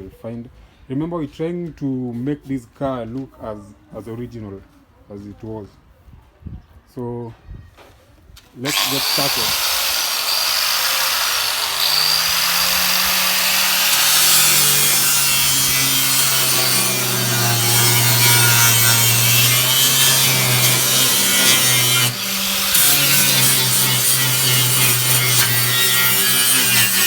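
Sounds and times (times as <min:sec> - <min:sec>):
power tool motor humming: 0:08.7 - 0:27.0
grinding hiss on metal: 0:10.7 - 0:27.0.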